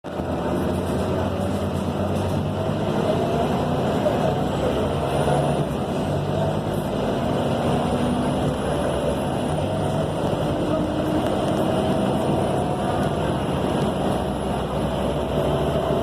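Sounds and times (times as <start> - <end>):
road noise: 0.0 - 16.0
bus diesel engine droning: 0.1 - 16.0.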